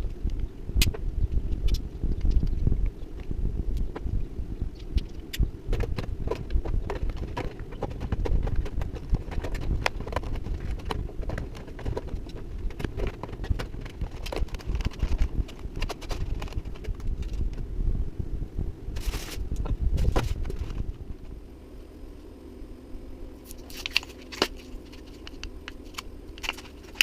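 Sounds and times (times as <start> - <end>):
constant low rumble: 0.0 - 27.0
objects being handled: 4.8 - 17.6, 23.4 - 27.0.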